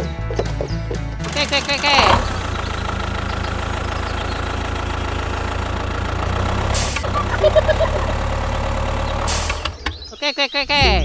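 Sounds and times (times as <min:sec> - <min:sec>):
small engine running: 0:01.2 - 0:09.8.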